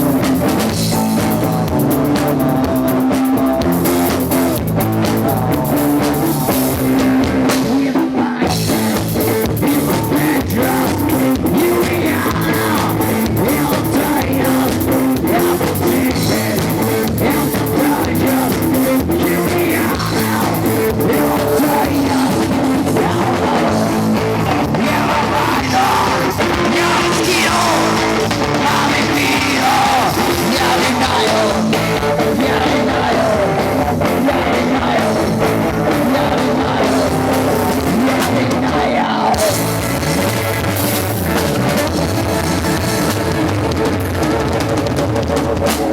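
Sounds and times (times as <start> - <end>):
person singing: 0.0 - 40.3
live rock band playing: 0.0 - 45.9.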